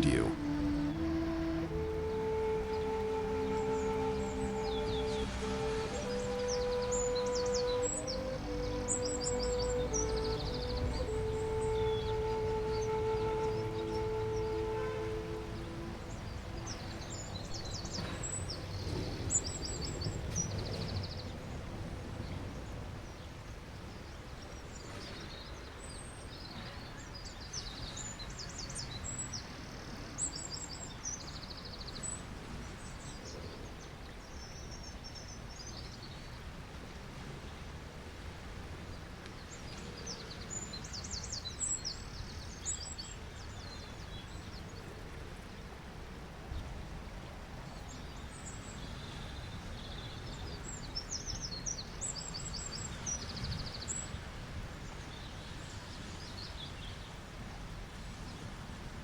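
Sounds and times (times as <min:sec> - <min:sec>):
small birds chirping: 0:00.0 - 0:21.4
sea waves: 0:00.0 - 0:59.0.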